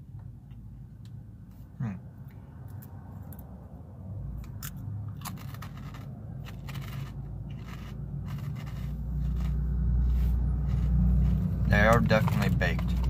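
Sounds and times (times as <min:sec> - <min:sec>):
crunching shrimp chips: 0:04.6 - 0:09.6
car cabin hum: 0:10.1 - 0:13.0.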